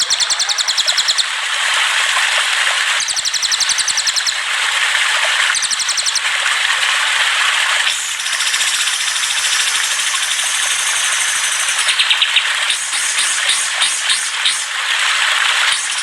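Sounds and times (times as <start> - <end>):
songbirds chirping and trilling: 0.0 - 1.3, 3.0 - 4.4, 8.2 - 14.7
steady high hiss: 7.9 - 14.8.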